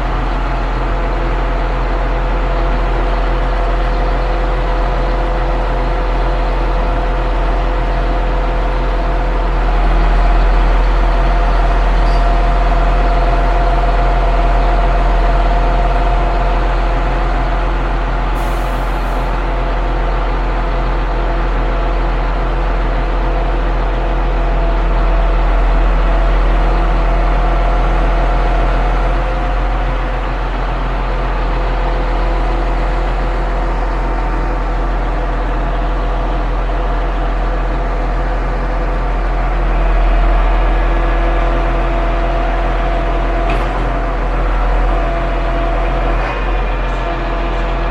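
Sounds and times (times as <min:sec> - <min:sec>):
truck engine running under load: 0:00.0 - 0:47.9
short hiss: 0:18.4 - 0:19.3.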